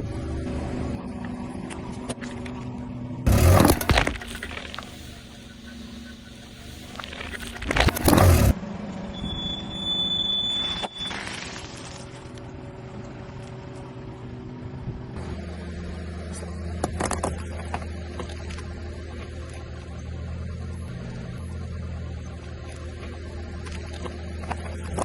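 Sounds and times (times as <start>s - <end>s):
car engine running: 0.0s - 9.1s
tyre crushing objects: 3.3s - 4.5s.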